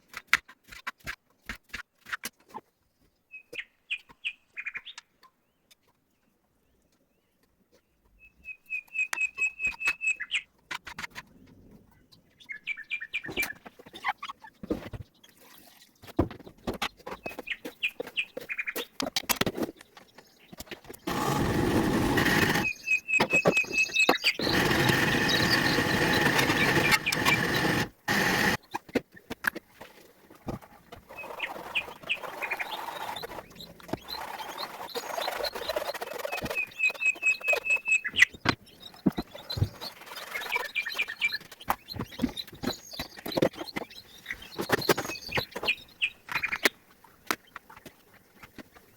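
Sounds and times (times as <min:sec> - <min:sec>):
small birds chirping: 0:19.6 - 0:28.8, 0:30.9 - 0:46.8.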